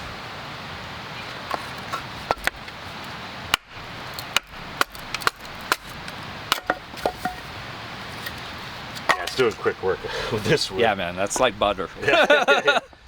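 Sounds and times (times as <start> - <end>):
wood splitting: 1.8 - 2.8, 3.5 - 7.5.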